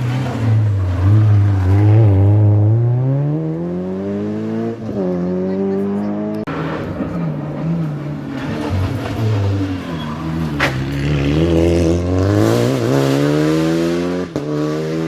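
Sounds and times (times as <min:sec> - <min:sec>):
rally car engine accelerating: 0:00.0 - 0:15.0.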